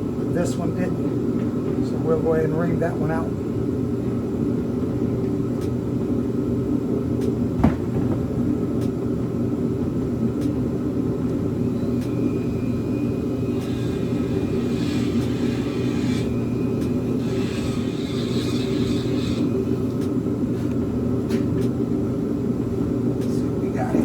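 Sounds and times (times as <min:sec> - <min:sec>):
steady low hum: 0:00.0 - 0:24.0
reamer whine with gritty hiss: 0:06.2 - 0:24.0.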